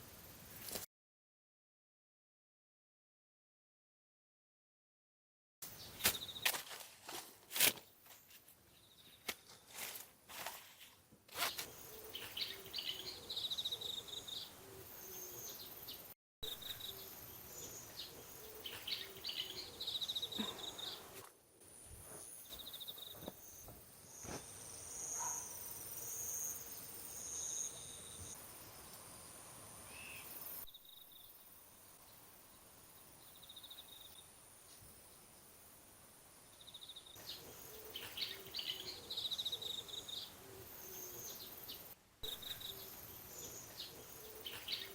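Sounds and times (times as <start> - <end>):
birds chirping: 11.4 - 21.2, 22.3 - 28.4, 36.6 - 44.9
insects calling: 11.4 - 35.8, 36.4 - 44.9
thin steady high insect tone: 11.6 - 44.9.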